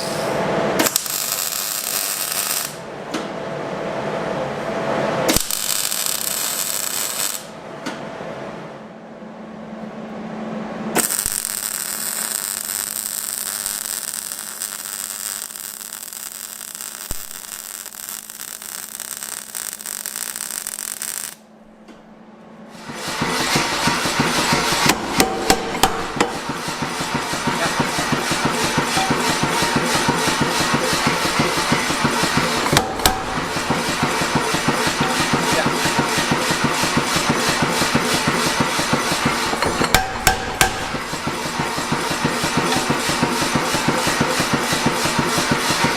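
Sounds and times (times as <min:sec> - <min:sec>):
rapid hammer strikes: 0:22.8 - 0:45.9.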